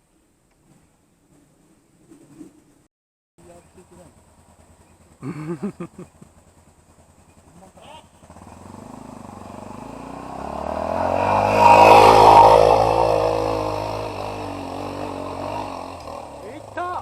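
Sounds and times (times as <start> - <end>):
faint engine idling: 3.4 - 10.6
motorcycle engine revving: 3.9 - 17.0.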